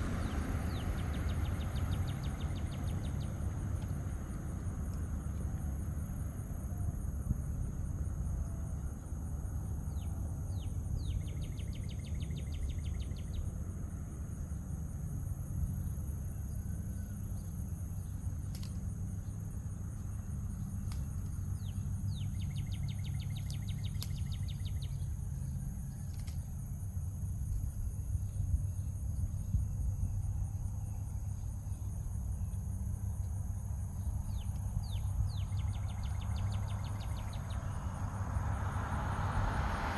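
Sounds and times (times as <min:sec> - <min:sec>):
songbird singing with trill: 0:00.0 - 0:05.8, 0:08.1 - 0:13.7, 0:15.7 - 0:26.7, 0:30.2 - 0:38.2
high insect-like hum: 0:00.0 - 0:39.9
low outdoor rumble: 0:00.0 - 0:39.9.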